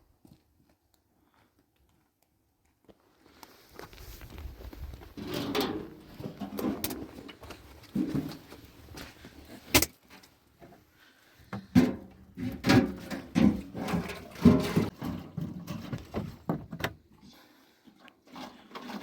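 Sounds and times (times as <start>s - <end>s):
objects knocking and thudding: 5.2s - 8.7s, 11.5s - 17.0s.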